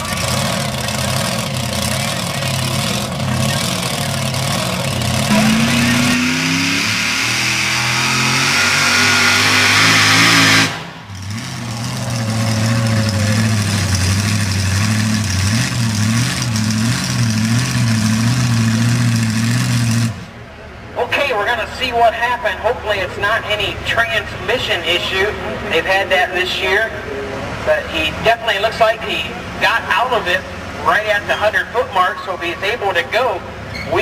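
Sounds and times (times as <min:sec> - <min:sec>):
truck engine under load: 0:00.0 - 0:20.6.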